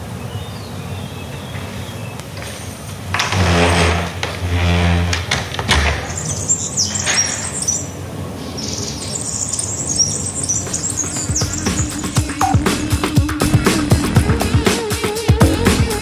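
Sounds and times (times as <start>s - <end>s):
small birds chirping: 0.0s - 2.9s, 6.1s - 13.6s
low steady pitched tone: 15.4s - 16.0s.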